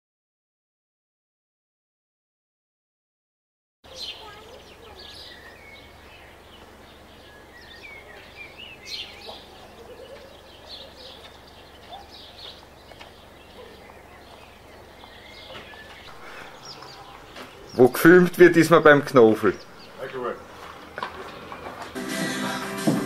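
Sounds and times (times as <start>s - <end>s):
birds chirping and whistling: 3.9s - 22.0s.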